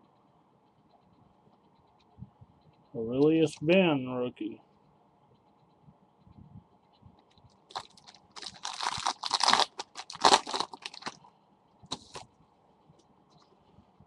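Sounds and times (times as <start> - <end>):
trading cards rustling: 7.7 - 11.2, 11.9 - 12.2.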